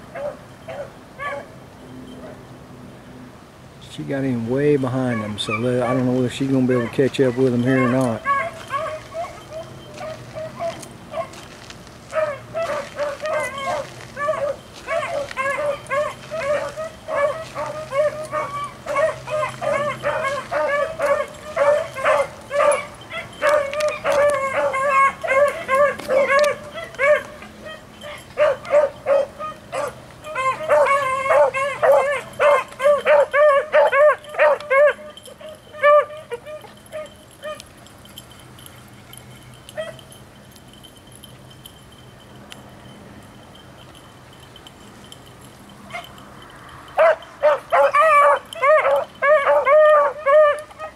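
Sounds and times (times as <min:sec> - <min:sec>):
dog yelps: 0:00.1 - 0:01.5, 0:05.0 - 0:11.5, 0:12.1 - 0:40.2, 0:45.9 - 0:46.2, 0:46.9 - 0:50.9
dogs baying: 0:00.1 - 0:02.5, 0:04.8 - 0:50.9.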